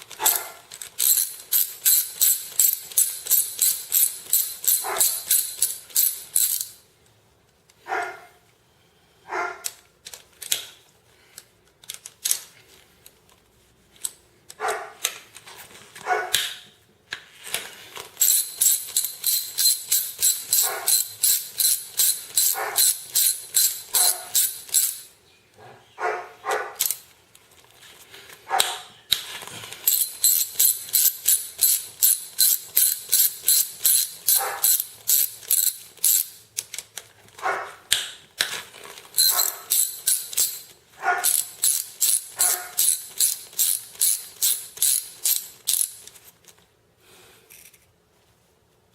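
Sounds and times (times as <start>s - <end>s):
ratchet wrench clicking: 0.1s - 6.8s, 18.2s - 25.1s, 29.8s - 36.7s, 39.2s - 46.1s.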